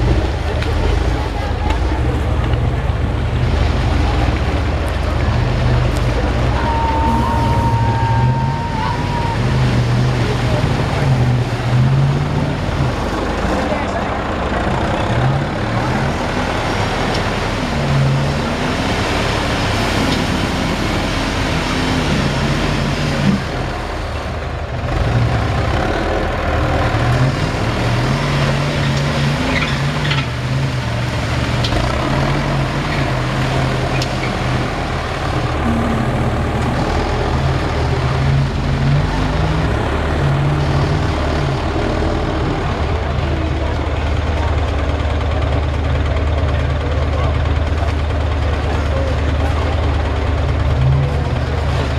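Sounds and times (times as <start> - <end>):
truck engine revving: 0.0 - 51.9.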